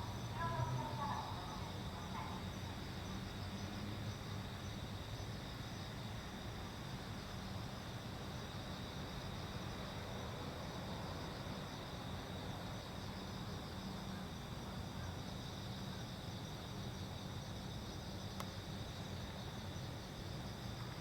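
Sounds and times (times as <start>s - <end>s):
night insects trilling: 0.0s - 21.0s
faint click: 18.4s - 18.6s.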